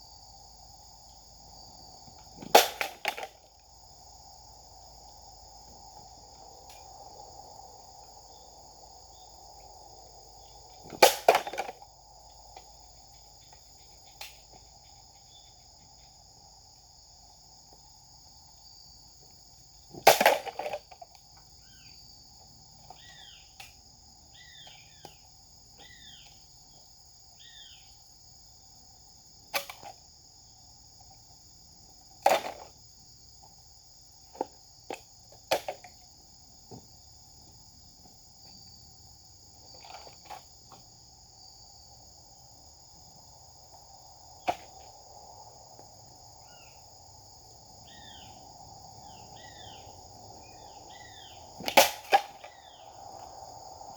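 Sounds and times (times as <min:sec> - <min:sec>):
insects droning: 0:00.0 - 0:53.9
bird chirping: 0:22.9 - 0:23.5, 0:24.3 - 0:25.2, 0:27.4 - 0:28.0, 0:47.8 - 0:48.4, 0:49.0 - 0:51.5.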